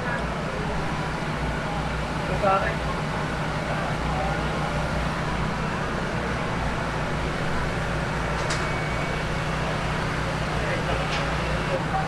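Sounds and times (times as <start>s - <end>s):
constant low hum: 0.0s - 12.0s
distant crowd chatter: 0.0s - 12.0s.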